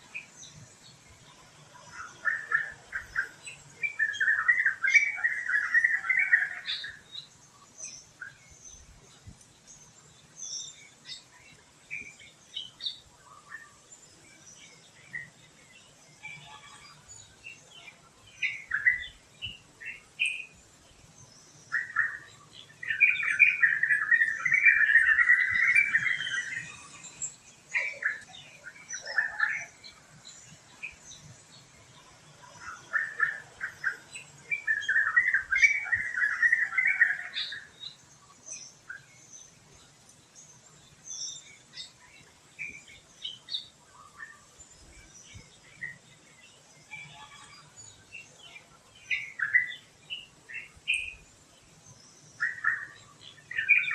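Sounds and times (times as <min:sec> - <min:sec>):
birds chirping: 0:00.0 - 0:53.9
rapid bird chatter: 0:00.0 - 0:53.9.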